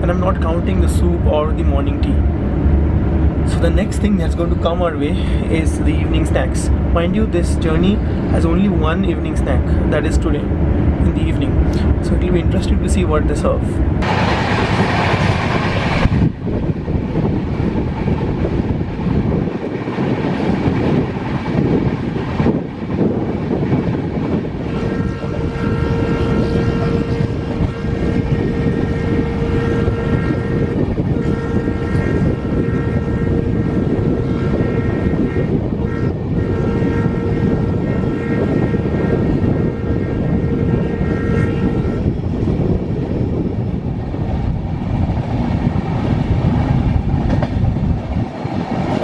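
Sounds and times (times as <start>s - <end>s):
train wheels rumbling on rails: 0.0s - 49.0s.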